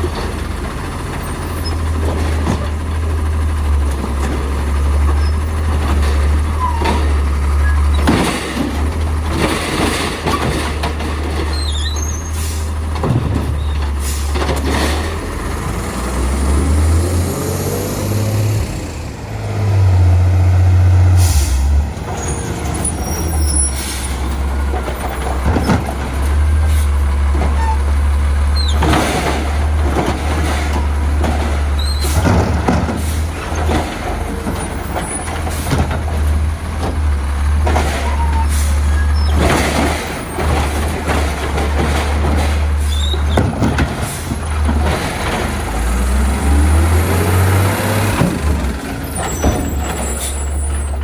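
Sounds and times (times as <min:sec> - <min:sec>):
diesel truck engine revving: 0:00.0 - 0:51.0
air brake hisses: 0:21.2 - 0:21.8.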